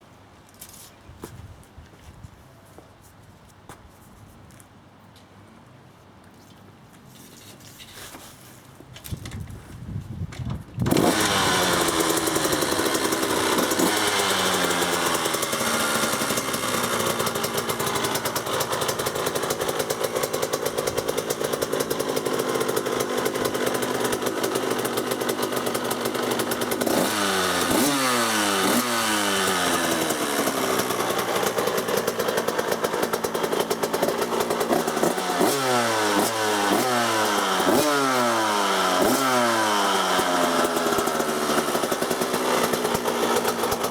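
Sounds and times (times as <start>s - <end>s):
motorcycle engine starting: 10.8s - 43.9s
engine revving: 10.9s - 43.9s.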